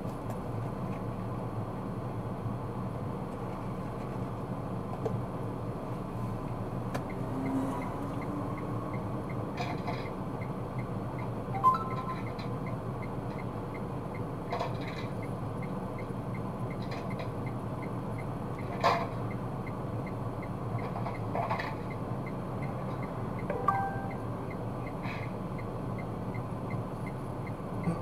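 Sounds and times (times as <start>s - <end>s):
car road and engine rumble: 0.0s - 28.0s
short beep: 11.6s - 12.3s, 23.5s - 24.2s.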